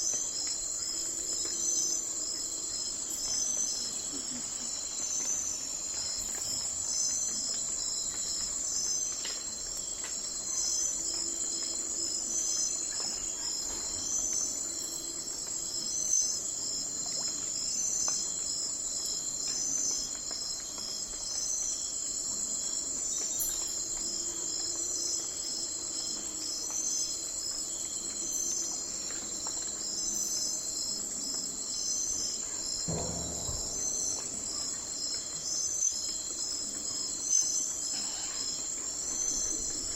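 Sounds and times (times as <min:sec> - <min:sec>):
insects chirping: 0:00.0 - 0:39.9
short low sound: 0:32.9 - 0:34.9.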